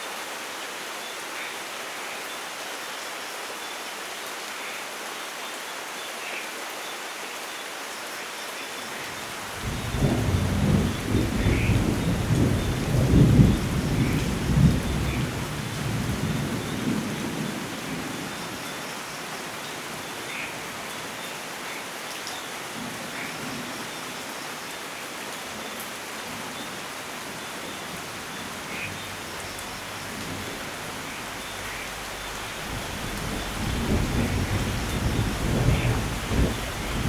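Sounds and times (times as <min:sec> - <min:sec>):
steady rainfall: 0:00.0 - 0:37.0
thunder rumbling: 0:09.5 - 0:18.2, 0:29.0 - 0:37.0.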